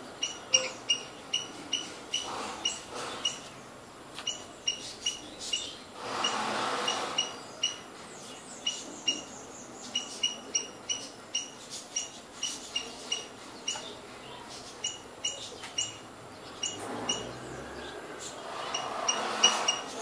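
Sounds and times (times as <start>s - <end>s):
small bird chirping: 0.1s - 3.6s, 4.2s - 20.0s.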